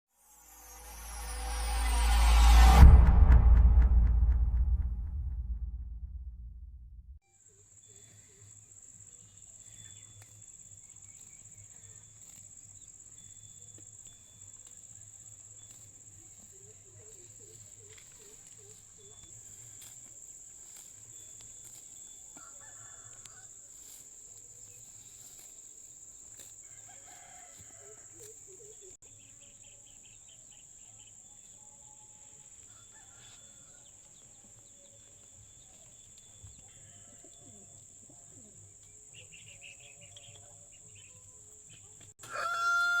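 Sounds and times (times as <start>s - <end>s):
high-pitched whine: 0.1s - 7.2s
low hum: 0.2s - 7.2s.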